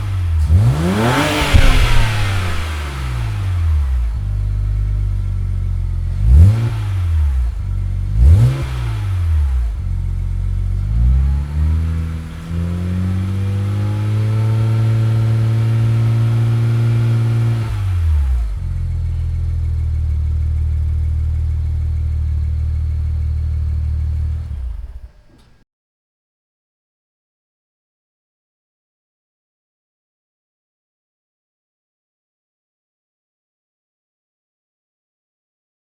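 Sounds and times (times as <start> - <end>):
car engine revving: 0.0 - 25.6.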